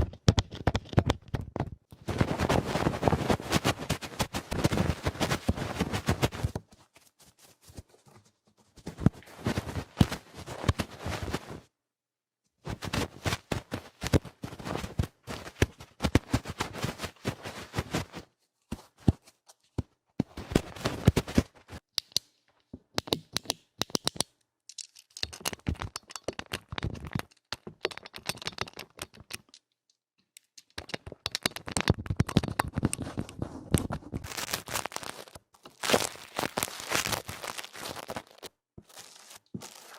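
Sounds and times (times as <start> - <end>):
rough scratching at microphone: 32.8 - 34.8.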